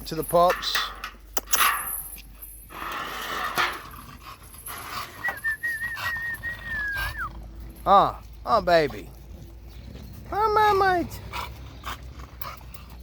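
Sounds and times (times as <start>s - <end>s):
dog panting: 4.1s - 13.0s
dog whining: 4.8s - 7.4s.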